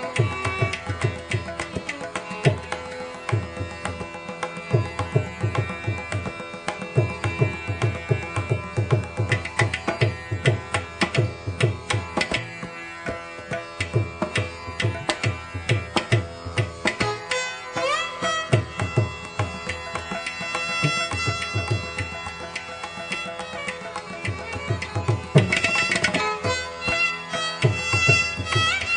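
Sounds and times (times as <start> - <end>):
plucked string instrument: 0.0 - 28.9
tabla drumming: 0.0 - 28.9.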